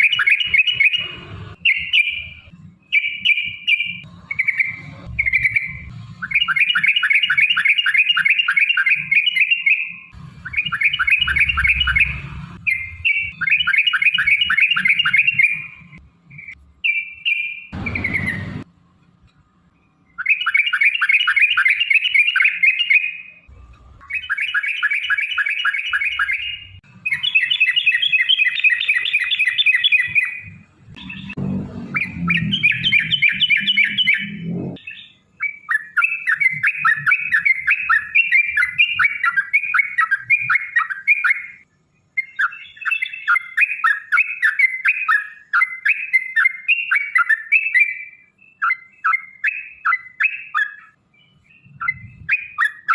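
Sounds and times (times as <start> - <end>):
bulbul singing rolling chirps: 0.0 - 18.7, 19.5 - 52.9.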